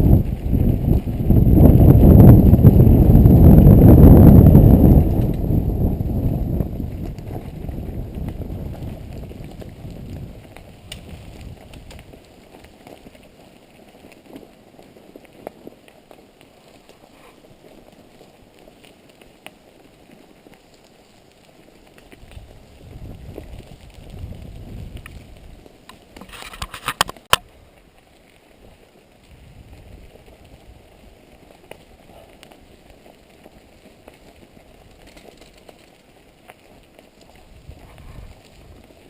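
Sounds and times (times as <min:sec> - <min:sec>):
wind rush: 0:00.0 - 0:12.1, 0:22.2 - 0:25.6, 0:37.4 - 0:39.0
bike tyre rumble on dirt: 0:00.0 - 0:39.0
small clicks from bike: 0:04.6 - 0:05.6, 0:06.4 - 0:39.0.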